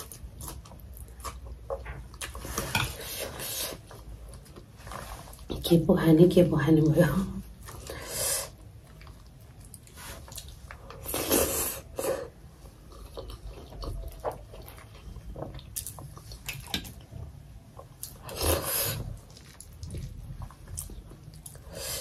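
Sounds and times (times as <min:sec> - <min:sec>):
person chewing wetly: 0:00.0 - 0:03.0, 0:08.6 - 0:17.1, 0:17.7 - 0:22.0.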